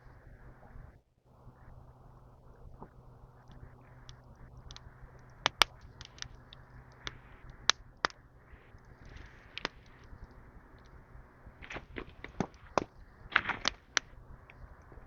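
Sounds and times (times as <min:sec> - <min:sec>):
sharp clicks of fire-lighting gear: 0:03.5 - 0:11.0, 0:11.6 - 0:14.9
dry kindling being handled: 0:11.6 - 0:15.0.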